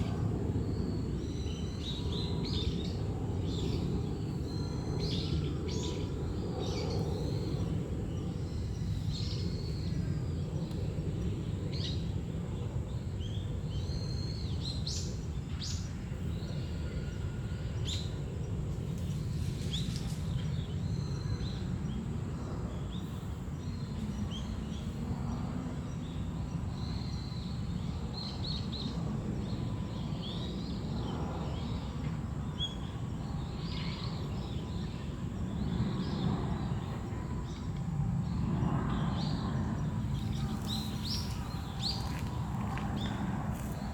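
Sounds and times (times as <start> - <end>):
low background rumble: 29.2 - 43.9
small birds chirping: 38.3 - 43.9.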